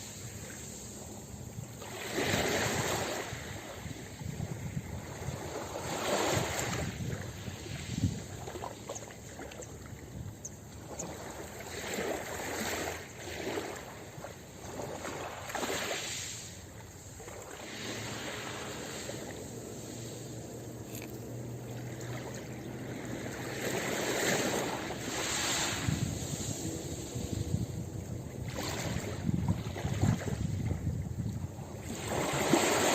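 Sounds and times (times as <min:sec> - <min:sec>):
ocean surf breaking: 0:15.0 - 0:30.5.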